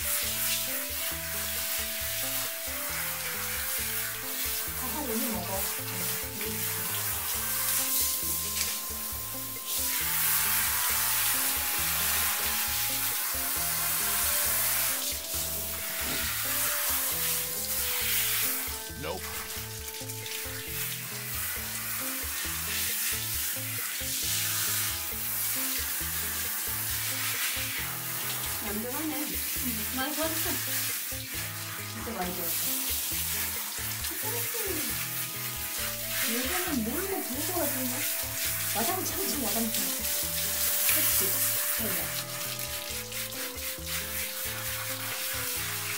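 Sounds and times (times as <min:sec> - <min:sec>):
background music with bass line: 0:00.0 - 0:45.9
shower head spraying water: 0:00.0 - 0:45.9.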